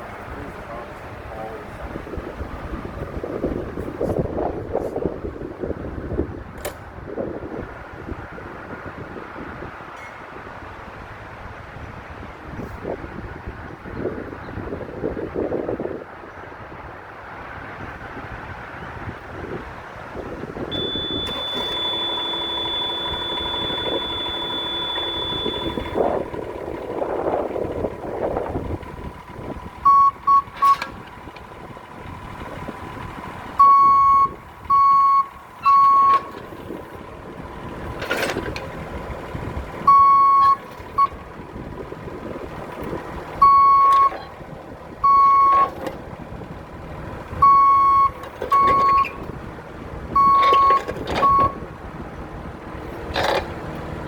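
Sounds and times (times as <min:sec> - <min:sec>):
excavator engine running: 0:00.0 - 0:09.0, 0:19.2 - 0:54.0
travel alarm short beeps: 0:20.7 - 0:26.3, 0:29.8 - 0:31.0, 0:33.6 - 0:36.6, 0:39.9 - 0:41.2, 0:43.4 - 0:44.2, 0:45.0 - 0:45.9, 0:47.4 - 0:49.2, 0:50.2 - 0:51.6.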